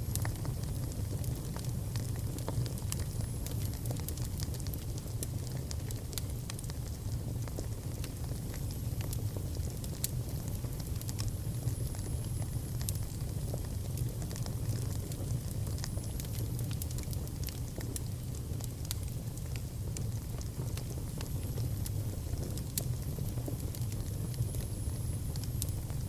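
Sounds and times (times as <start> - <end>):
fire crackling and popping: 0.0 - 26.0
wood fire rumbling: 0.0 - 26.0.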